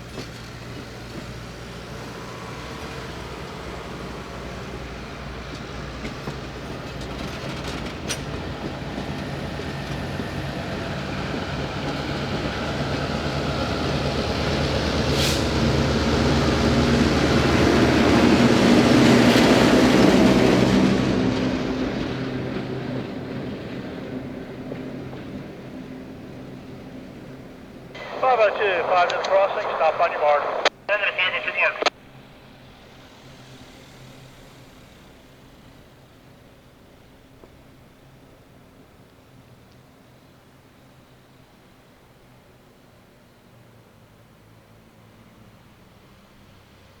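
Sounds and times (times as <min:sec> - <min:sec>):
wheels on rail: 0:00.0 - 0:28.0
diesel train engine drone: 0:00.0 - 0:47.0.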